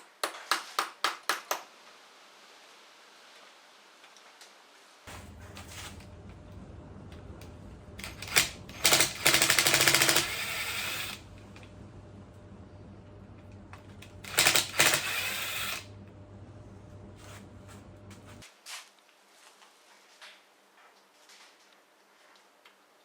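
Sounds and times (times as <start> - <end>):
cordless power tool rattling: 8.0 - 11.2, 14.0 - 15.9.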